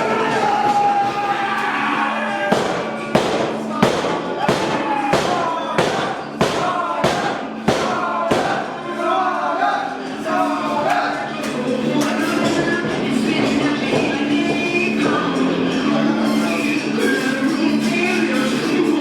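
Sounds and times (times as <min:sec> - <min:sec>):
person singing: 0:00.0 - 0:19.0
heavy beats: 0:02.4 - 0:08.9.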